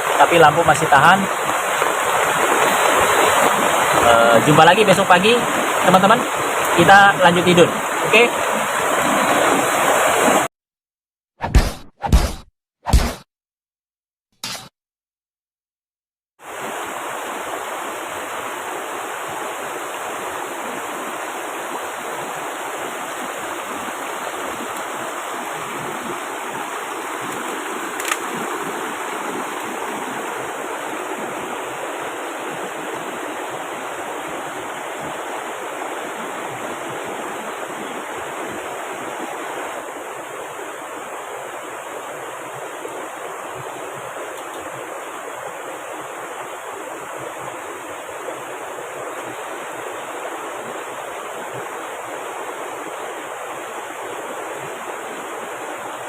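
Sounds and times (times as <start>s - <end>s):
heavy rain falling: 0.0s - 10.4s
rushing river: 0.0s - 10.5s, 16.4s - 56.0s
sharp click: 14.4s - 14.7s.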